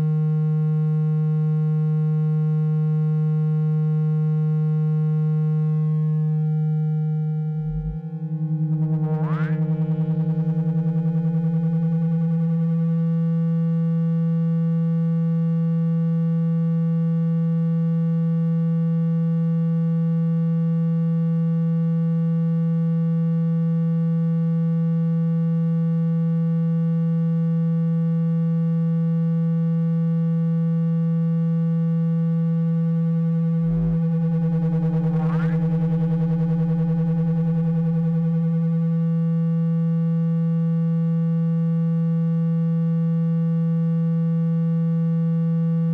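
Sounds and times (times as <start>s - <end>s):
low electronic tone: 4.2s - 14.0s, 32.0s - 39.8s.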